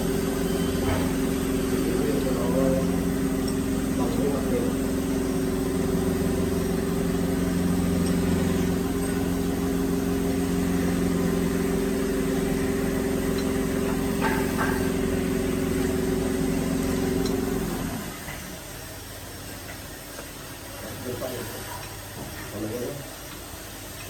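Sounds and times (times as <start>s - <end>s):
drilling machine motor humming: 0.0s - 18.3s.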